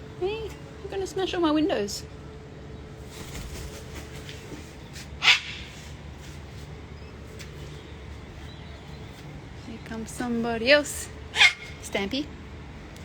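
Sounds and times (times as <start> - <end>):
cockatoo squawk: 5.2 - 6.0, 11.3 - 11.9.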